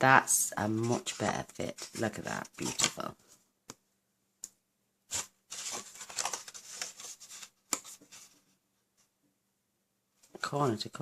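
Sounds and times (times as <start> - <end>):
paper rustling and rubbing: 0.6 - 3.1, 5.1 - 8.6.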